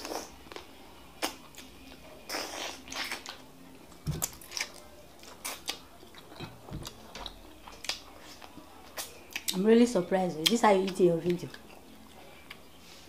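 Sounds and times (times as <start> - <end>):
wet chewing and smacking: 0.0 - 9.6.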